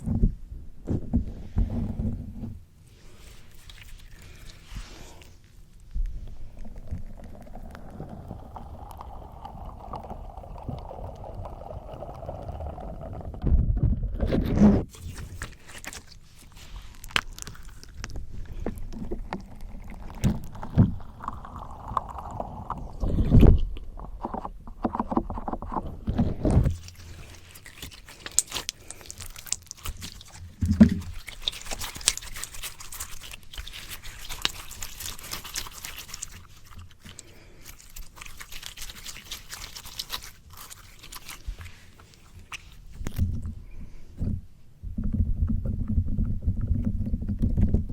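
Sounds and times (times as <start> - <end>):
low thumps on microphone: 0.0 - 2.6, 13.3 - 14.9, 44.2 - 47.9
slime squishing and crackling: 3.2 - 13.5, 14.2 - 43.7.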